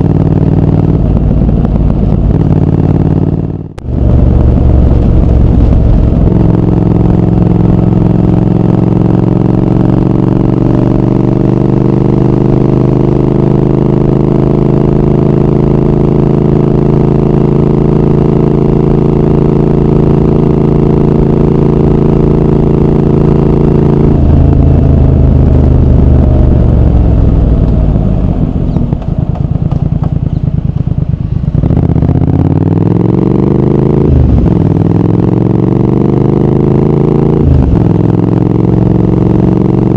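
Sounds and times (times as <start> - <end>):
motorcycle engine and exhaust: 0.0 - 39.9
gear change: 22.8 - 32.2.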